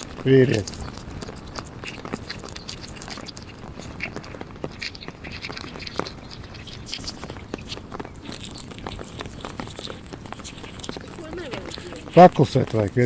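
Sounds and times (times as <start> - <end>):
heavy rain on a car: 10.9 - 13.0.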